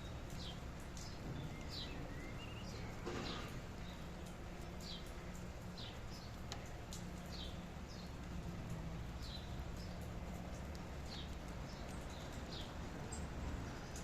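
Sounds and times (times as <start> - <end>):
steady rain: 0.0 - 14.0
bird chirping: 0.1 - 4.0.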